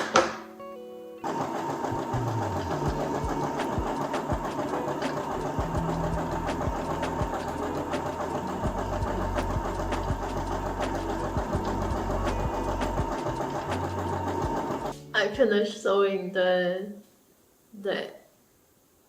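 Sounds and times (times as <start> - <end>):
sewing machine motor running: 1.2 - 15.0.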